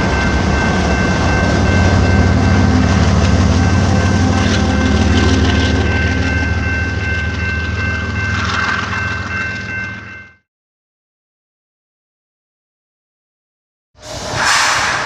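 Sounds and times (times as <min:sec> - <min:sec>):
train rumbling past: 0:00.0 - 0:10.3, 0:14.0 - 0:15.0.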